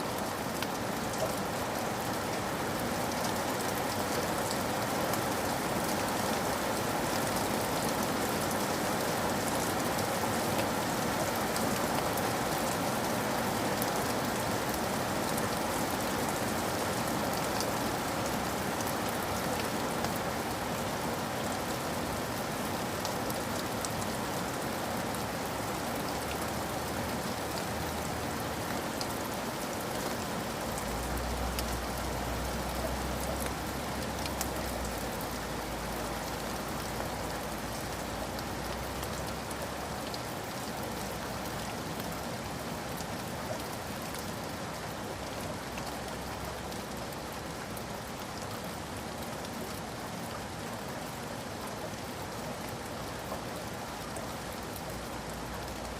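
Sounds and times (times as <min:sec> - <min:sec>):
steady rain patter: 0:00.0 - 0:55.9.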